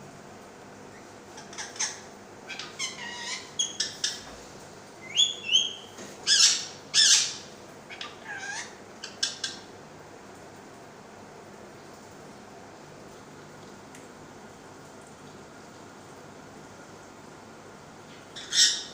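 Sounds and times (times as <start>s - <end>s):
parrot squawking: 1.4s - 4.2s, 5.0s - 9.6s, 18.4s - 18.9s
parrot whistled calls: 5.0s - 7.4s.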